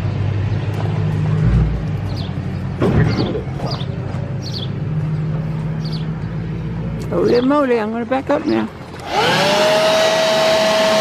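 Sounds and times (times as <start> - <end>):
electric blower running: 8.9 - 11.0.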